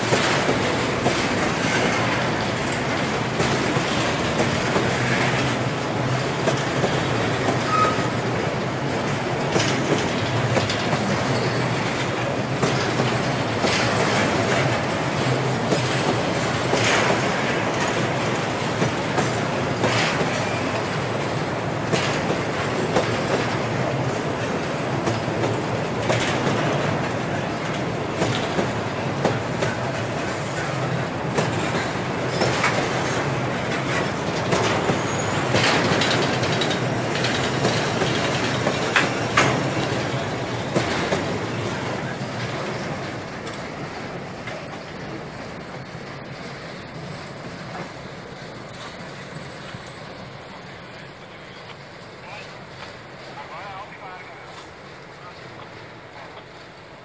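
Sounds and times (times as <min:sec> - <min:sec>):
wheels clacking over rail joints: 0:00.0 - 0:53.4
train wheels rumbling on rail: 0:00.0 - 0:57.0
high wheel squeal: 0:07.6 - 0:08.2, 0:34.8 - 0:35.8.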